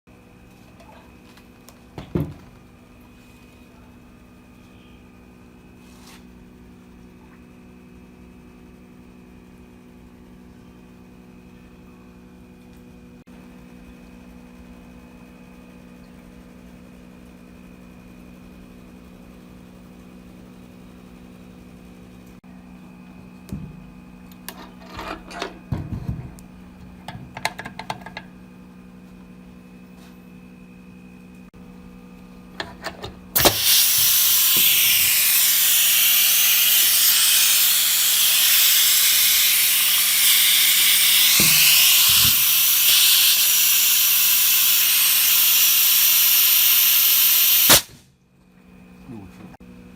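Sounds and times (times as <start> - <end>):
loud steady hiss: 33.4 - 48.0.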